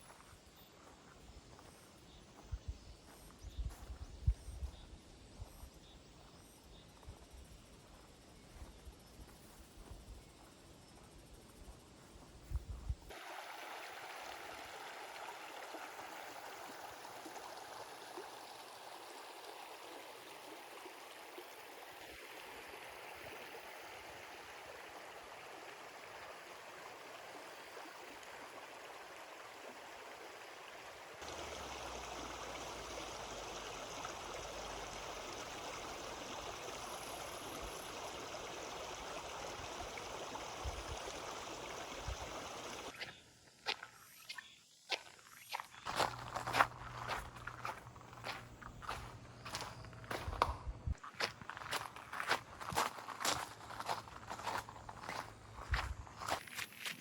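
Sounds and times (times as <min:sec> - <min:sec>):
stream flowing over rocks: 0:13.1 - 0:43.0.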